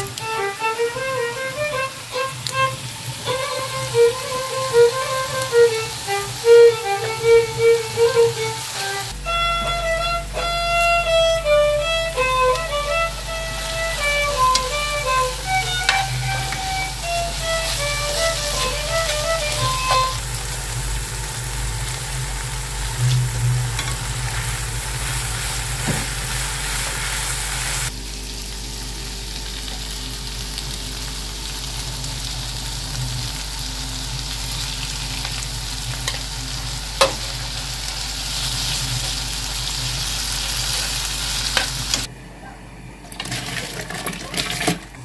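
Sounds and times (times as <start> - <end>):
meat mixture sizzling in a pan: 0.0 - 10.0, 10.8 - 42.1
metal spoon scraping a pan: 14.0 - 20.2.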